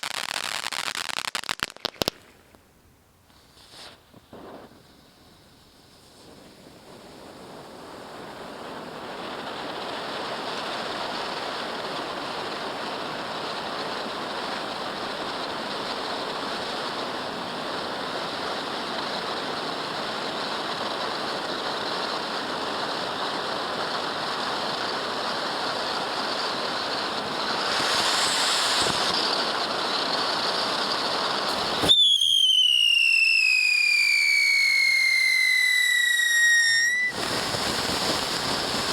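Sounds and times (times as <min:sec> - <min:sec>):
firework fountain crackling spray: 0:00.0 - 0:38.9
firework whistle falling in pitch: 0:27.4 - 0:38.9.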